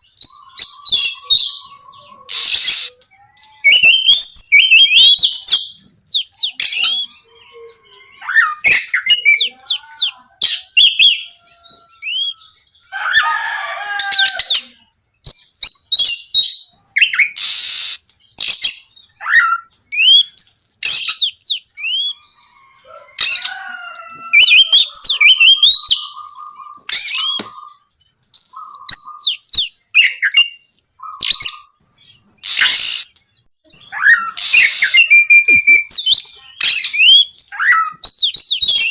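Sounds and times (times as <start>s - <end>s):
magpie-robin singing whistles: 0.0s - 1.6s, 2.3s - 7.2s, 8.2s - 9.5s, 10.5s - 12.5s, 15.2s - 22.2s, 23.2s - 27.5s, 28.4s - 31.7s, 33.8s - 38.9s.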